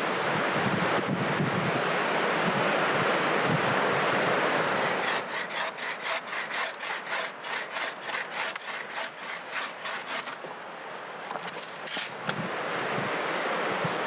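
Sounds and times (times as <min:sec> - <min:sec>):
wind over microphone: 0:00.0 - 0:05.2, 0:12.2 - 0:14.0
hand saw cutting wood: 0:04.5 - 0:10.5.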